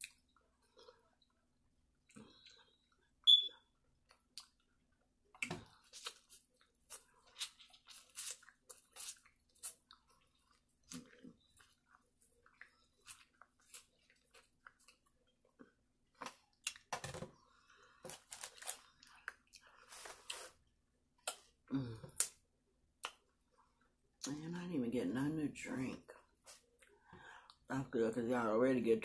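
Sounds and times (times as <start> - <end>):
sharp high squeak: 3.3 - 3.6
crunching corn on the cob: 5.4 - 10.0, 18.1 - 19.4.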